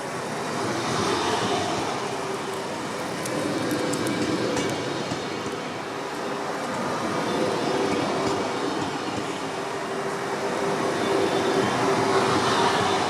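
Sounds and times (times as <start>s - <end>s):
train wheels rushing on rails: 0.0s - 13.0s.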